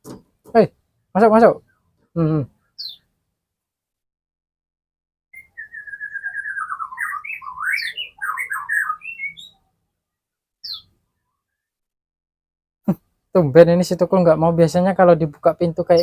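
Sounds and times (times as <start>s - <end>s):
bird whistling: 2.8s - 3.0s, 5.4s - 9.6s, 10.6s - 10.9s.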